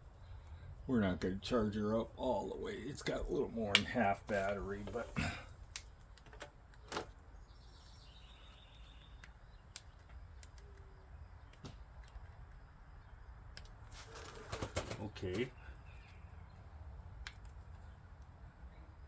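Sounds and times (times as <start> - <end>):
background hum: 0.0 - 19.0
faint high chirping: 7.3 - 11.7.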